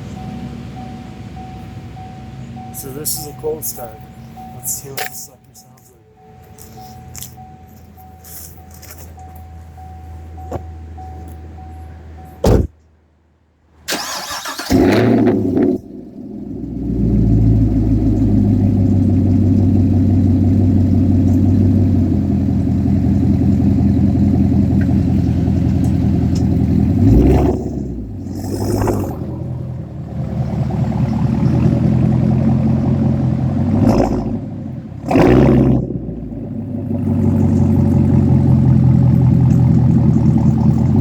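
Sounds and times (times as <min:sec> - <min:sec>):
car engine cold start: 0:00.0 - 0:05.4, 0:13.8 - 0:41.0
car engine idling: 0:00.0 - 0:41.0.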